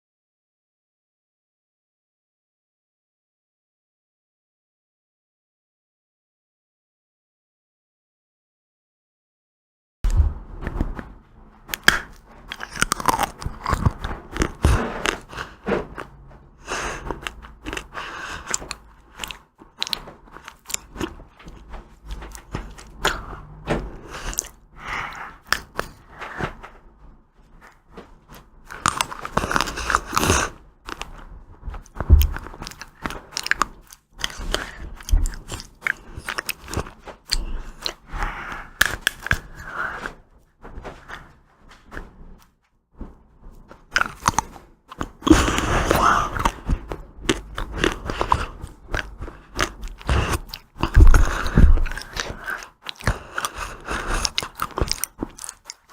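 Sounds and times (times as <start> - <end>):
ice cream crunching: 11.6 - 26.5, 27.6 - 39.8, 43.9 - 55.9.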